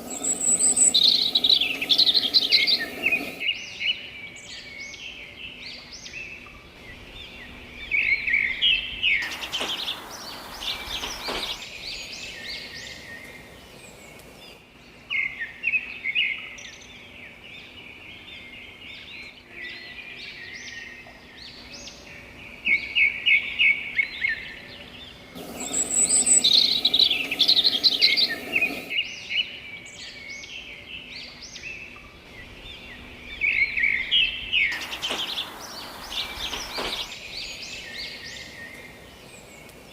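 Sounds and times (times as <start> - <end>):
loud hiss: 0.0 - 3.7, 9.0 - 14.6, 25.3 - 29.1, 34.5 - 39.9
songbirds chirping and singing: 0.0 - 39.9.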